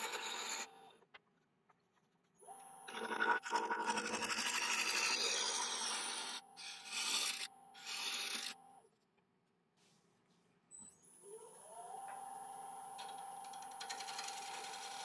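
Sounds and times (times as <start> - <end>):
turning tool scraping wood: 0.0 - 0.7, 2.9 - 8.6, 13.5 - 15.0
wood lathe whine: 0.0 - 0.8, 2.7 - 8.6, 11.6 - 15.0.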